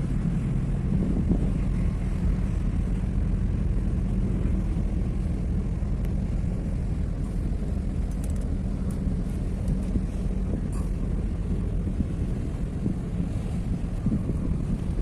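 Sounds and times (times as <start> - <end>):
low rumble: 0.0 - 15.0
wind noise on microphone: 0.0 - 15.0
faint clicks: 8.0 - 9.0.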